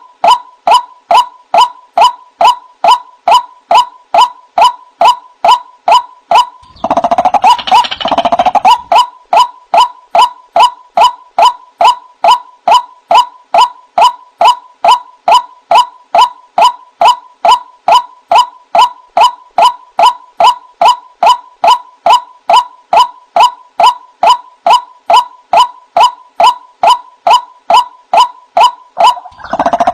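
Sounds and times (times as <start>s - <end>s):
waterhen croaking call: 6.4s - 9.5s, 29.0s - 29.9s.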